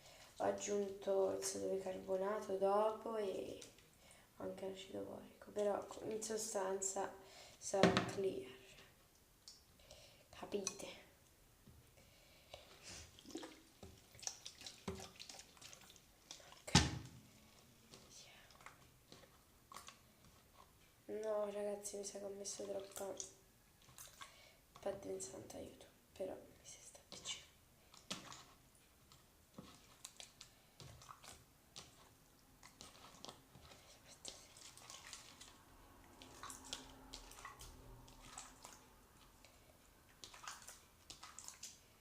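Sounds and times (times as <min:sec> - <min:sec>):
wet sticky slime squelching: 0:11.8 - 0:25.5, 0:27.0 - 0:42.0.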